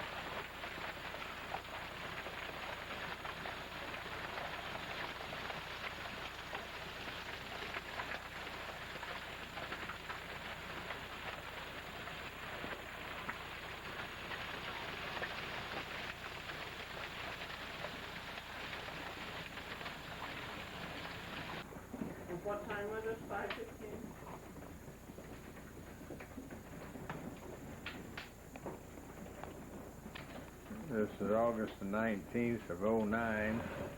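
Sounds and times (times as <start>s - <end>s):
hail and rain pelting: 0.0s - 21.7s
hailstones ticking: 0.0s - 21.7s, 22.3s - 33.9s.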